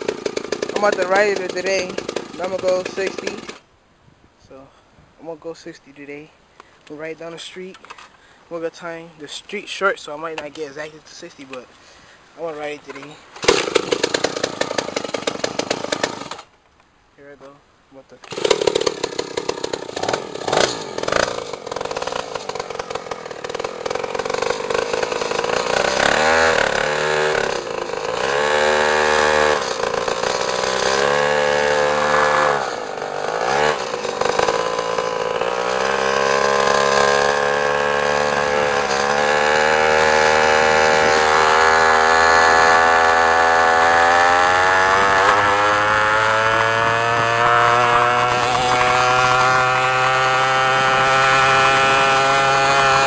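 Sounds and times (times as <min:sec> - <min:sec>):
small motorbike engine revving: 0:00.0 - 0:03.6, 0:13.4 - 0:16.5, 0:18.2 - 0:53.0.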